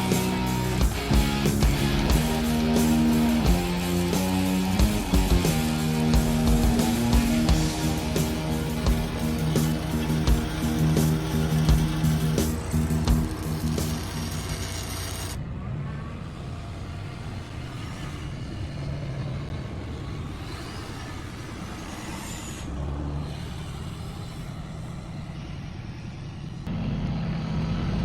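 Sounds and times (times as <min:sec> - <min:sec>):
truck engines running: 0:00.0 - 0:15.4
faint rising whine: 0:00.0 - 0:28.0.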